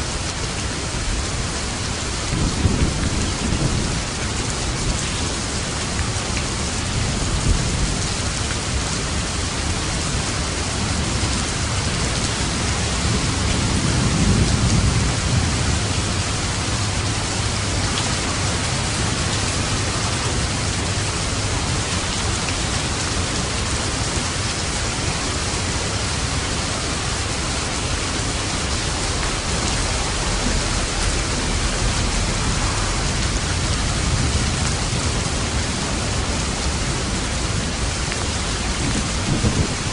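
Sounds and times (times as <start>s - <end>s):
heavy rain hissing: 0.0s - 39.9s
low thunder rolling: 2.3s - 4.9s, 11.0s - 23.5s, 27.2s - 39.9s.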